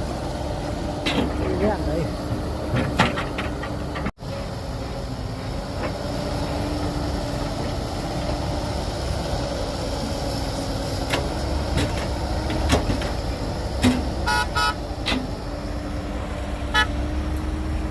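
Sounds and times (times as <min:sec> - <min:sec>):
diesel engine running: 0:00.0 - 0:17.9
short horn toots: 0:14.3 - 0:14.8.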